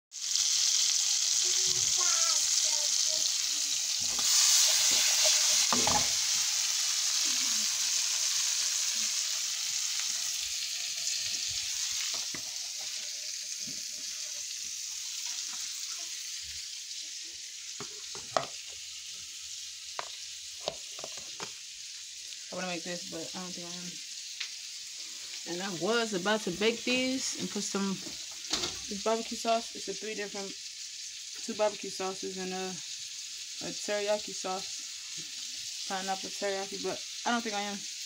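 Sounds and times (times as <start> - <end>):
meat sizzling in a frying pan: 0.1 - 38.0
utensils and dishes knocking: 5.7 - 6.2.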